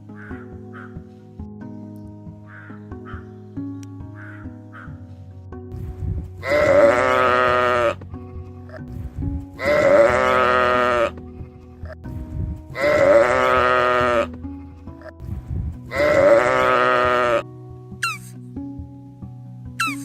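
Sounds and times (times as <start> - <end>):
soft background music: 0.0 - 20.0
animal bleats: 6.4 - 8.0, 9.6 - 11.2, 12.7 - 14.4, 15.9 - 18.2.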